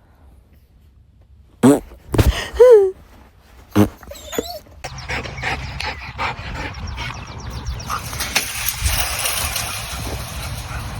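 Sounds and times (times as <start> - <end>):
dog panting: 4.0 - 8.2.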